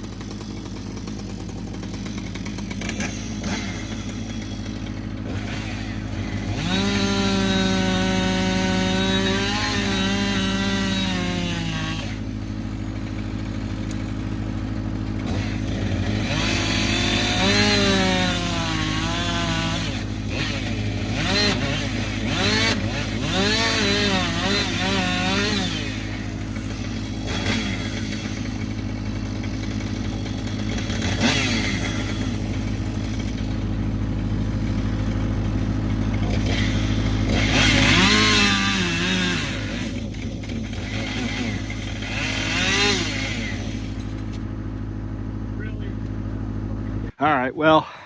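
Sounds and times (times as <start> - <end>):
chainsaw idling and revving: 0.0 - 47.3.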